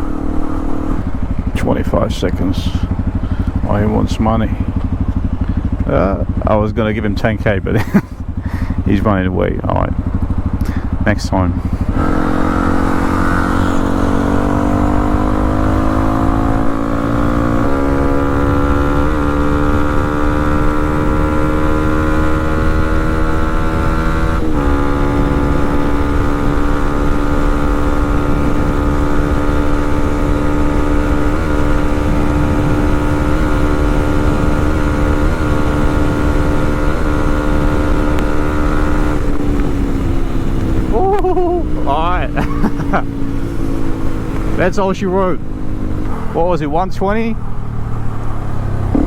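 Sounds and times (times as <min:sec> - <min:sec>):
motorcycle engine at full throttle: 0:00.0 - 0:49.0
wind noise: 0:09.9 - 0:46.6.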